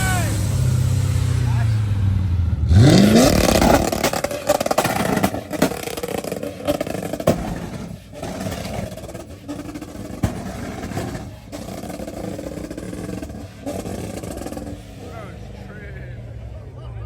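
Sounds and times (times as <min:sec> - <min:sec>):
car engine revving: 0:00.0 - 0:17.0
sharp cracks: 0:02.8 - 0:15.0.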